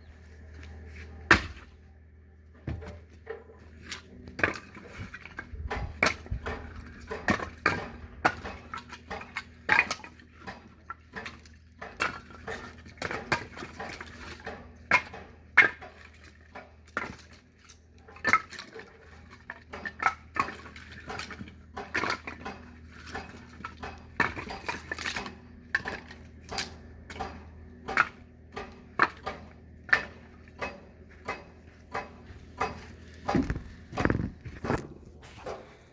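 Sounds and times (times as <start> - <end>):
firewood knocking and clattering: 21.0 - 35.6.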